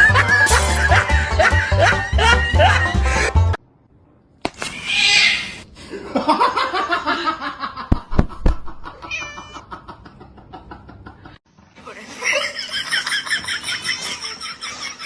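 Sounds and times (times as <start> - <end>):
cat meowing: 9.0 - 9.6.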